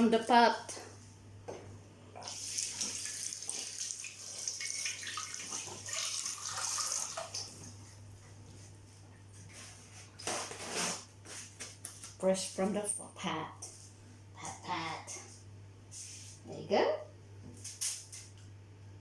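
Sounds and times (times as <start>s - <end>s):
kitchen tap running: 2.2s - 7.8s.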